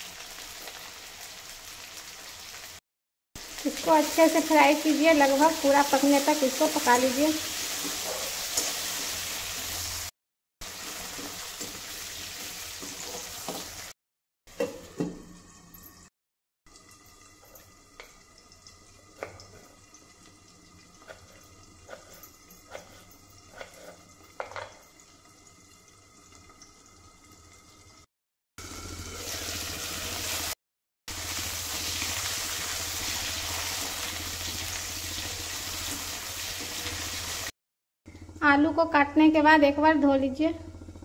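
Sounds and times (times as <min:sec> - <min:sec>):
vegetables sizzling in hot oil: 0:00.0 - 0:02.8, 0:03.4 - 0:14.0, 0:28.6 - 0:37.5.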